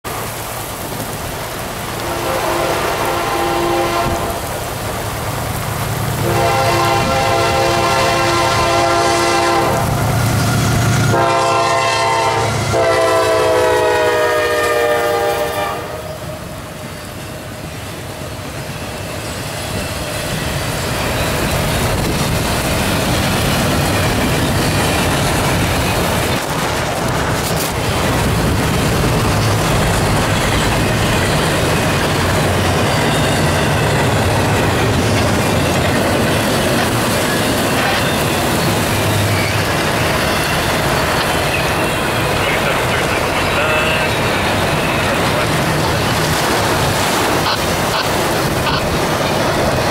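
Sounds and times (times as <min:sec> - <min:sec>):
heavy rain falling: 0:00.1 - 0:16.7, 0:21.3 - 0:49.9
train air horn blasts: 0:02.0 - 0:04.6, 0:06.2 - 0:16.4
freight cars rumbling and rattling: 0:19.4 - 0:49.9.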